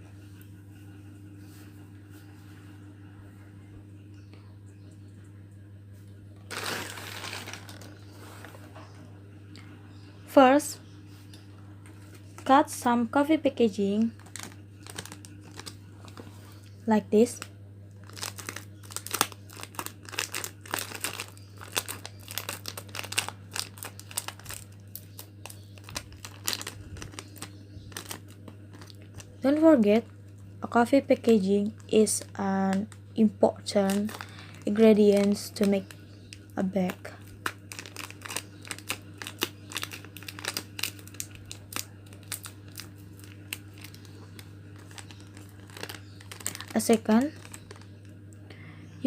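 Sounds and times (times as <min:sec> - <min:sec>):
steady low hum: 0:00.0 - 0:49.0
plastic wrappers crinkling: 0:06.5 - 0:08.6, 0:13.8 - 0:30.2, 0:33.6 - 0:48.2.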